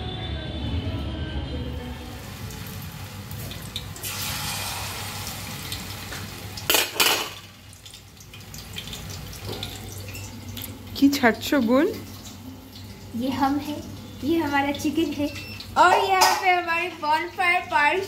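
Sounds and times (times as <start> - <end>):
food frying in a pan: 1.9 - 18.0
pots and utensils clattering: 6.6 - 7.5, 8.8 - 10.8, 15.3 - 16.6.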